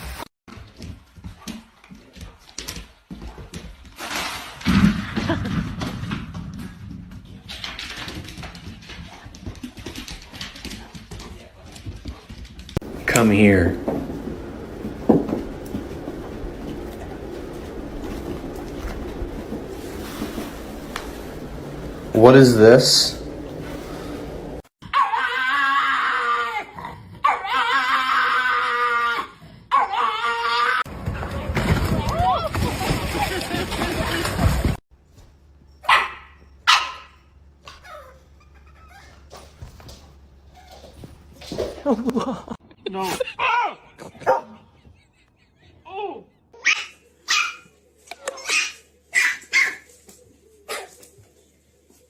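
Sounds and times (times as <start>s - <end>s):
dog howling: 24.9s - 30.8s
dog barking: 35.8s - 37.2s, 44.2s - 44.6s, 46.6s - 47.7s, 48.4s - 49.9s.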